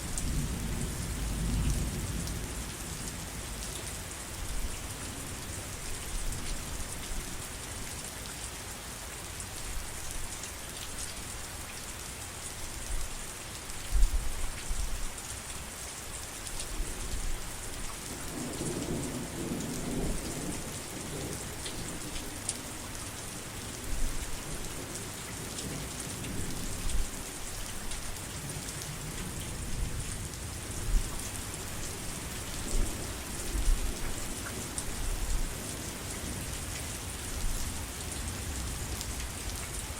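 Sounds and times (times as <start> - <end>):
low rumble of thunder: 0.0 - 3.8, 18.1 - 22.9
heavy rain falling: 0.0 - 39.9.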